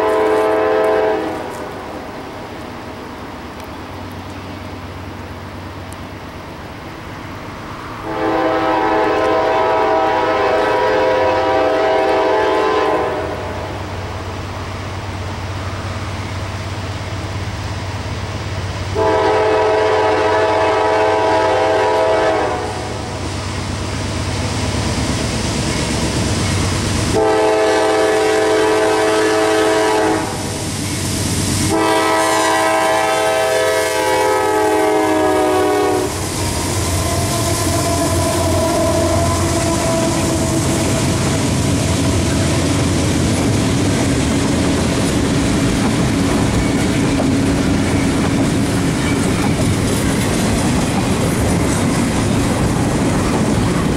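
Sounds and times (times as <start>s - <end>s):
train air horn blasts: 0.0s - 2.0s, 8.0s - 14.0s, 19.0s - 23.2s, 27.1s - 30.6s, 31.6s - 41.6s
wheels clacking on rail joints: 36.4s - 53.9s.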